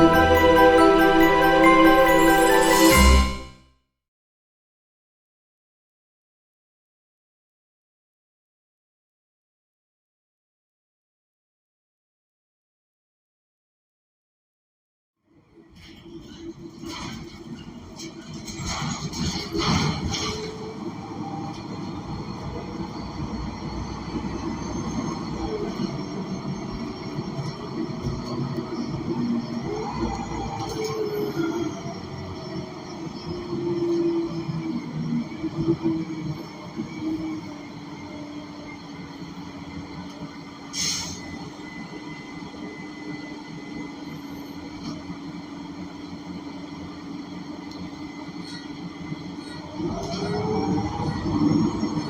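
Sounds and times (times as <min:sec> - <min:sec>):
bus engine drone: 0:15.7 - 0:52.0
short loud hiss: 0:40.8 - 0:41.2.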